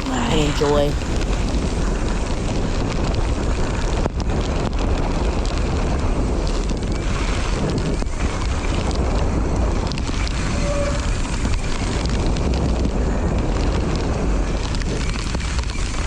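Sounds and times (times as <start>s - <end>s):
wind noise on microphone: 0.0s - 16.0s
brief squeak: 10.5s - 11.2s.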